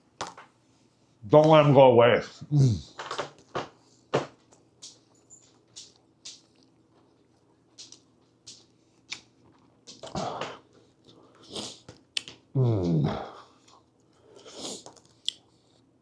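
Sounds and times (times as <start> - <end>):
person chewing food: 4.8 - 15.9.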